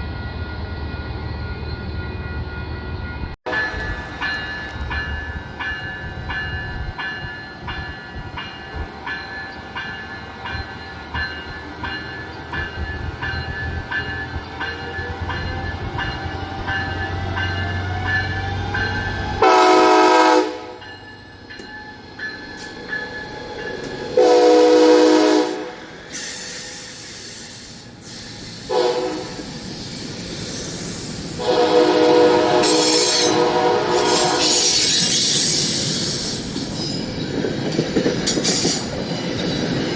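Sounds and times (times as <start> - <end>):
train running past: 0.0 - 39.9
train air horn: 19.4 - 20.8, 24.2 - 26.8, 28.6 - 29.5, 31.4 - 35.0
clicking from the rails: 21.1 - 24.1, 32.6 - 39.9.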